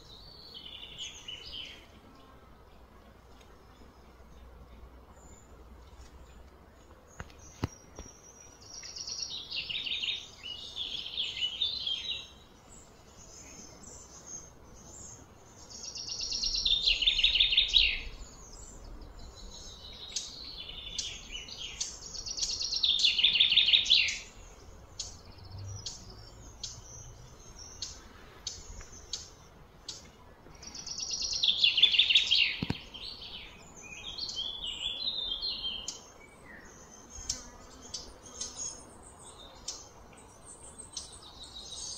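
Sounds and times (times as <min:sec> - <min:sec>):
songbird trilling: 0:15.7 - 0:24.4.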